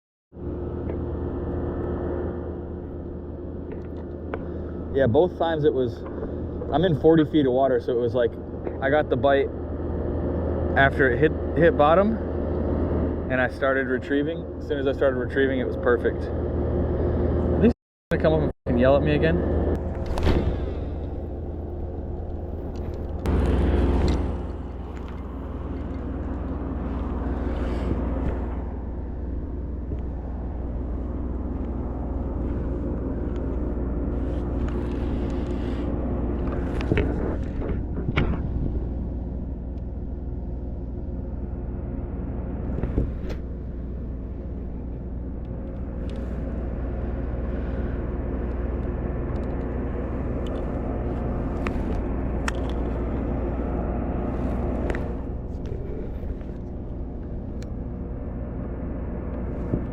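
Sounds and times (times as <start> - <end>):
low engine drone: 0.3 - 59.9.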